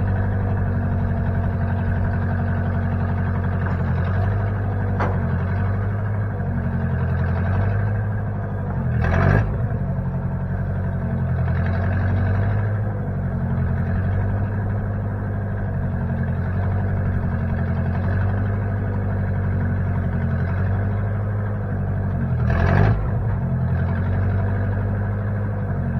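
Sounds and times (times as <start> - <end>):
backhoe engine running: 0.0 - 25.9.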